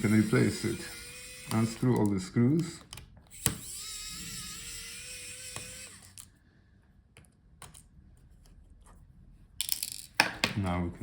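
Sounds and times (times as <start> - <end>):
electric screwdriver whirring: 0.0 - 2.1, 3.3 - 6.3.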